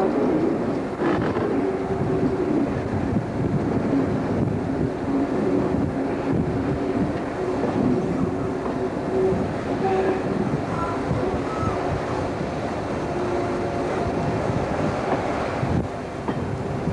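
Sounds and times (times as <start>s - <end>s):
diesel locomotive engine drone: 0.0s - 16.9s
train rolling on rails: 0.0s - 16.9s.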